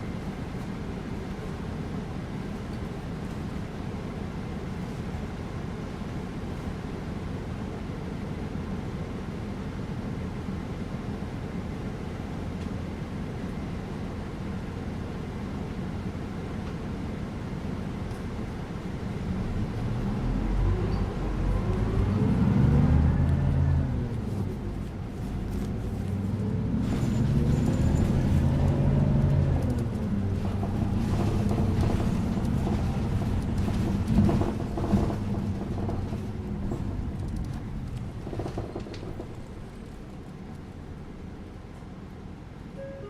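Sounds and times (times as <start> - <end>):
bus engine rumbling: 0.0 - 43.0
rattles and knocks: 29.7 - 40.0.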